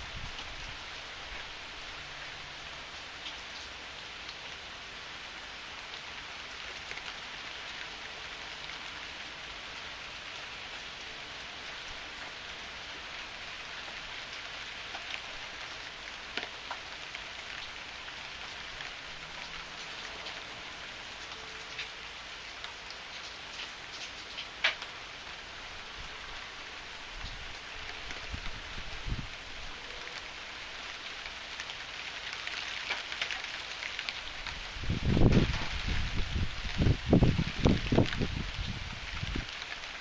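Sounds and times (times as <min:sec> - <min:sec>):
heavy rain falling: 0:00.0 - 0:40.0
sharp raindrop impacts: 0:05.8 - 0:29.2, 0:30.0 - 0:40.0.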